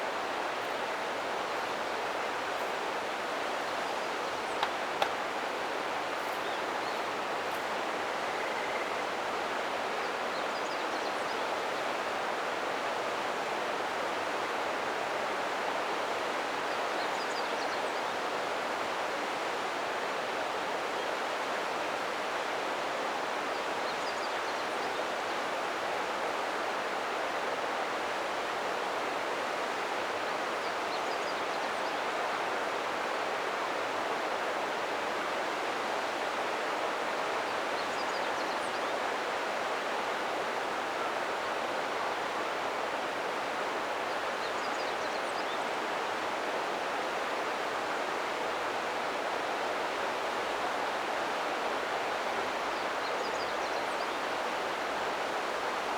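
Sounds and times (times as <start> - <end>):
river water flowing: 0.0 - 10.3.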